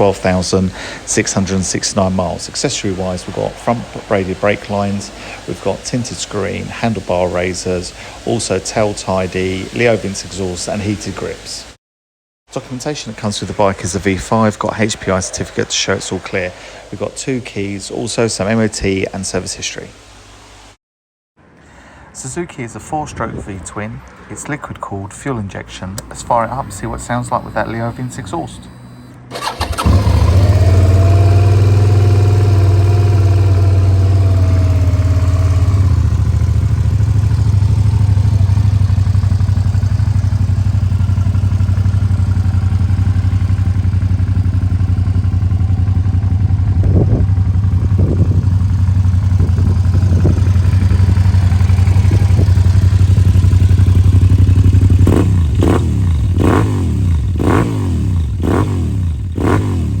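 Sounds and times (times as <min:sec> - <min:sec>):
motorcycle engine idling: 0:00.0 - 0:11.0, 0:26.0 - 1:00.0
engine throttle blips: 0:00.0 - 0:11.5, 0:25.7 - 1:00.0
quick engine revs: 0:26.1 - 0:39.9, 0:46.4 - 1:00.0.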